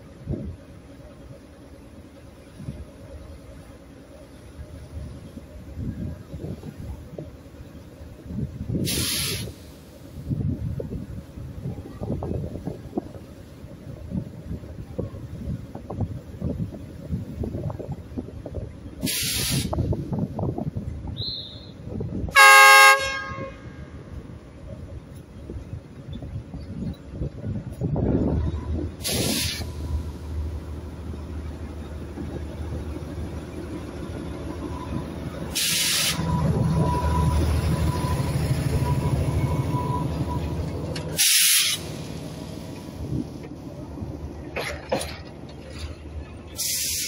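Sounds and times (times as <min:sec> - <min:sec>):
train rumbling on track: 0:00.0 - 0:47.0
brief hiss: 0:08.8 - 0:10.2, 0:19.0 - 0:19.8, 0:29.0 - 0:29.9, 0:35.5 - 0:36.3, 0:41.1 - 0:42.6, 0:46.6 - 0:47.0
locomotive horn blast: 0:22.3 - 0:24.0
locomotive engine running: 0:24.1 - 0:47.0.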